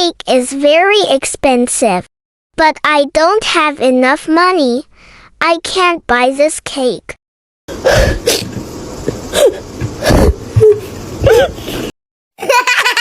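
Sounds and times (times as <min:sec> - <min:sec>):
steady background noise: 0:07.7 - 0:11.9
person whimpering and sobbing: 0:09.3 - 0:11.7.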